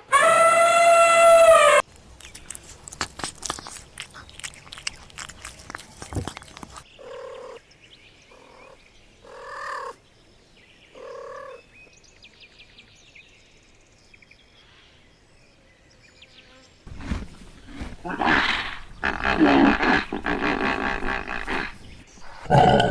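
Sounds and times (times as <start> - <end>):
faint clicks and chirps: 2.2 - 7.0
animal calling: 18.0 - 22.9.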